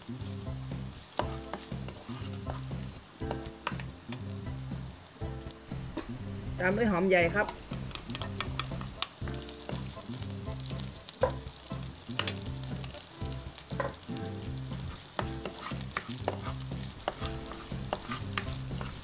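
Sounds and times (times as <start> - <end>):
onion and garlic sizzling in oil: 0.0 - 19.0
wooden spatula scraping a pan: 1.2 - 3.9, 12.2 - 19.0.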